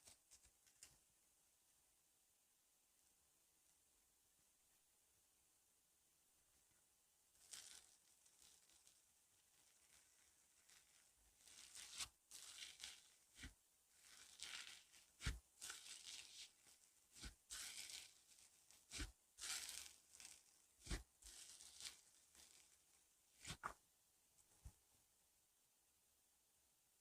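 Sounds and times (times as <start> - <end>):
slime squishing and crackling: 7.4 - 23.7.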